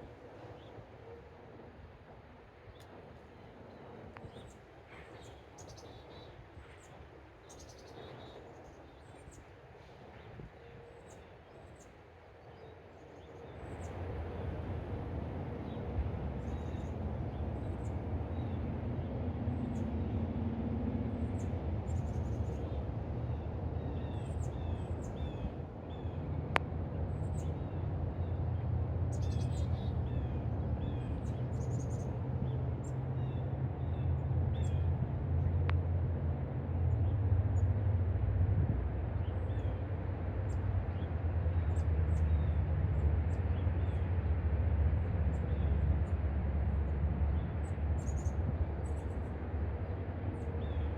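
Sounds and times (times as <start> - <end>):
steady low rumble: 13.6 - 50.9.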